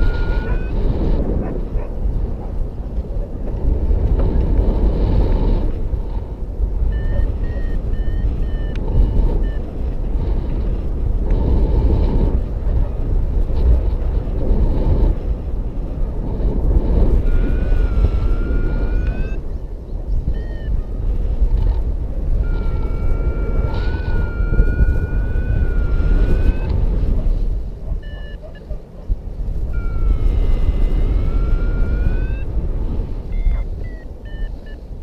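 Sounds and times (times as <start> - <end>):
variometer short beeps: 0.0 - 0.9, 6.8 - 10.0, 17.1 - 19.5, 20.1 - 21.2, 22.3 - 27.1, 27.9 - 28.8, 29.7 - 32.6, 33.2 - 35.0
wind on microphone: 0.0 - 35.0
rising electronic tone: 29.8 - 32.5.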